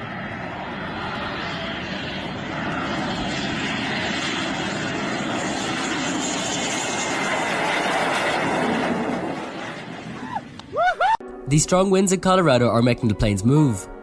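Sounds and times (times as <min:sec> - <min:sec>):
jet engine rushing noise: 0:00.0 - 0:10.8.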